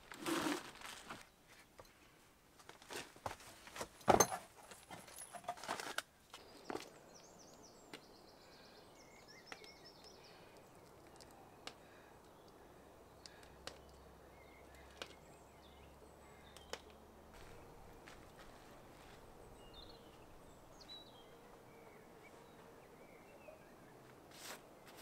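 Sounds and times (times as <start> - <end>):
distant birds chirping: 6.1 - 25.0
faint clicks: 9.4 - 12.6.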